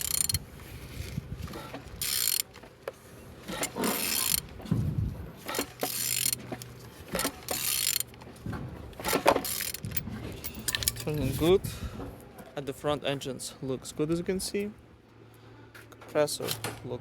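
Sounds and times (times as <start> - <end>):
ratchet wrench clicking: 0.0 - 0.4, 2.0 - 2.6, 3.6 - 4.5, 5.5 - 8.2, 9.4 - 10.0.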